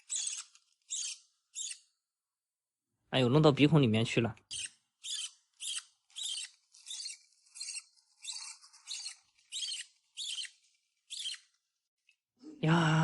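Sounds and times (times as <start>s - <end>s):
parrot chick raspy begging calls: 4.5s - 11.4s.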